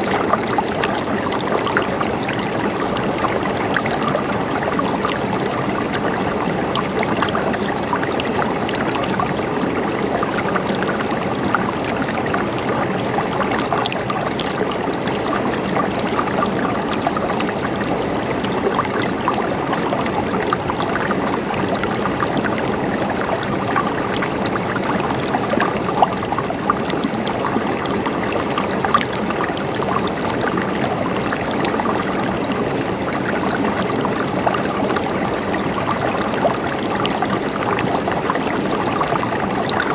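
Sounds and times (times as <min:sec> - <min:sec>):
stream of running water: 0:00.0 - 0:39.9.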